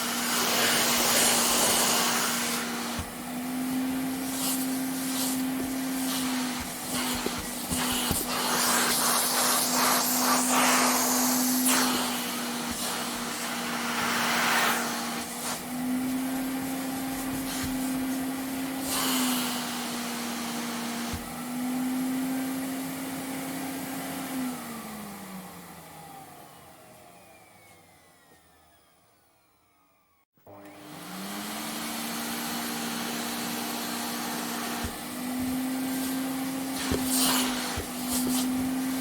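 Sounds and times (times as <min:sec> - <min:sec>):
vacuum cleaner running: 0:00.0 - 0:39.0
vacuum motor winding down: 0:18.4 - 0:39.0.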